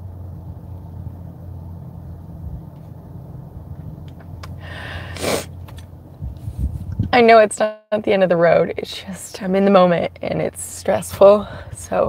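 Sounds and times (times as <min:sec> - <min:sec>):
car engine idling: 0:00.0 - 0:06.2
person breathing: 0:04.6 - 0:05.5.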